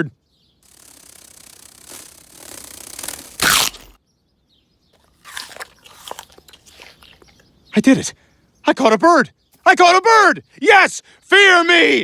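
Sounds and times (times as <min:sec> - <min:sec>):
crunches: 0:01.8 - 0:04.0, 0:05.0 - 0:07.4.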